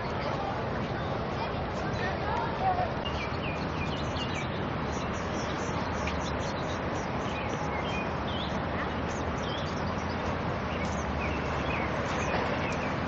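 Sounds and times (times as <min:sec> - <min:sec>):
small birds chirping: 0:03.0 - 0:13.0.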